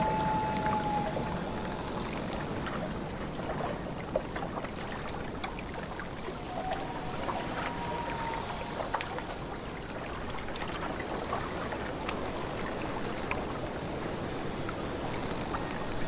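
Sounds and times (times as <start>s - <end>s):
loon wailing: 0.0s - 2.0s, 6.4s - 9.5s
lake water lapping and splashing: 0.0s - 16.0s
wind: 0.0s - 16.0s.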